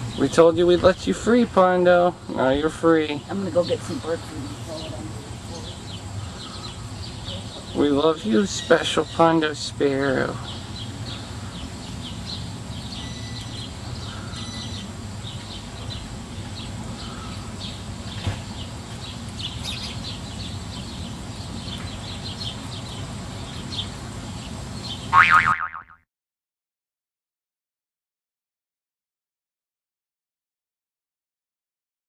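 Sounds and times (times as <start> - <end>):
low outdoor rumble: 0.0 - 25.1
small birds chirping: 0.0 - 25.2.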